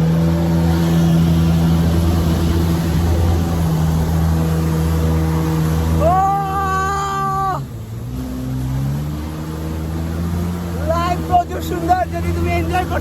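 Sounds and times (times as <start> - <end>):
jet ski engine running: 0.0 - 13.0
wind: 0.0 - 13.0.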